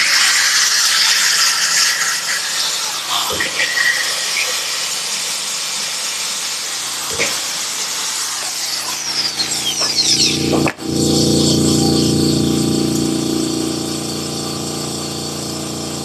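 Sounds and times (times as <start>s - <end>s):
air tool grinding rust off steel: 0.0s - 16.0s.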